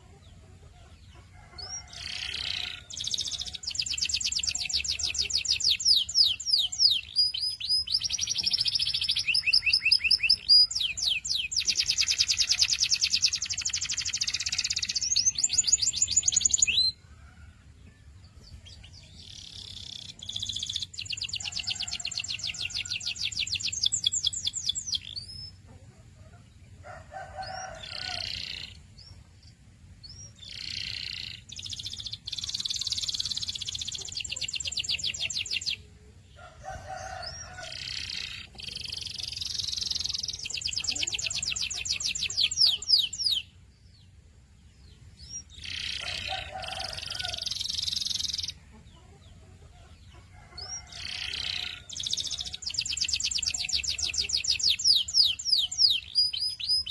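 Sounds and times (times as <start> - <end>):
canary singing trills: 0.0 - 17.3, 18.3 - 56.9.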